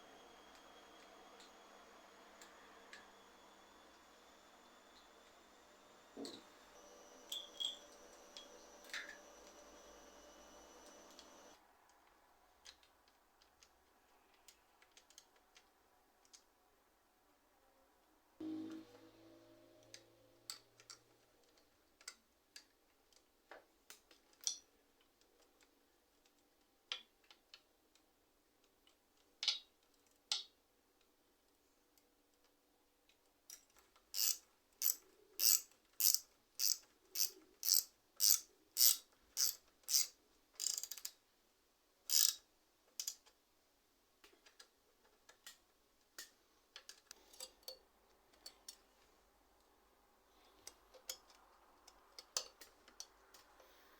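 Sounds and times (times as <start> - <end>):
bicycle ratcheting clicks: 34.1 - 41.1, 42.1 - 42.4.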